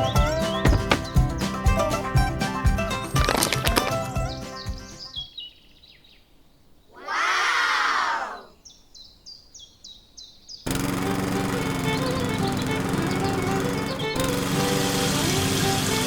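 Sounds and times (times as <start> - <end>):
bird chirps: 0.0 - 1.5, 3.4 - 7.1, 8.3 - 10.7
music: 0.0 - 5.1, 11.0 - 16.0.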